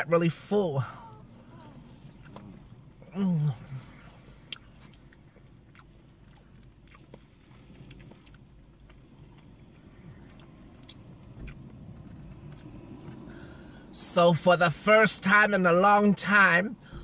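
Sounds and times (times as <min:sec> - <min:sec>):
person chewing food: 0:01.6 - 0:13.6.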